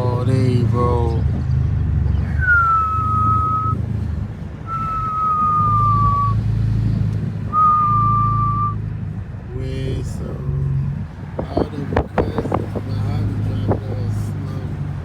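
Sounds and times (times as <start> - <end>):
car engine rumbling: 0.0 - 15.0
high whistle: 2.4 - 3.8, 4.7 - 6.4, 7.5 - 8.8.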